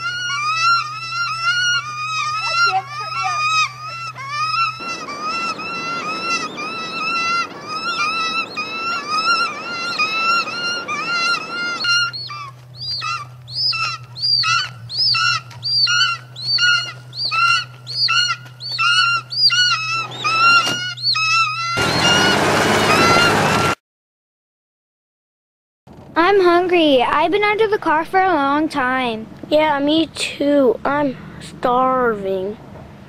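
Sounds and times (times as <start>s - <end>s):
flock of birds shrieking: 0.0s - 23.8s
low hum: 0.0s - 23.8s.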